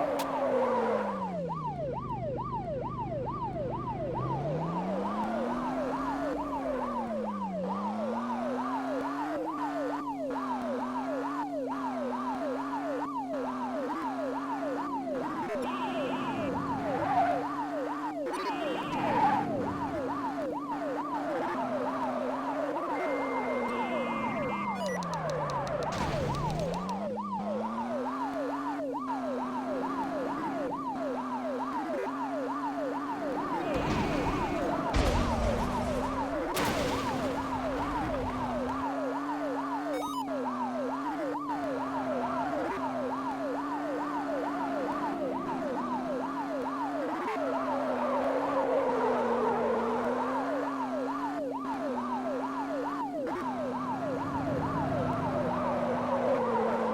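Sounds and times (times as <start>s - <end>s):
cartoon police siren yelp: 0.0s - 56.9s
clicks: 24.4s - 27.0s.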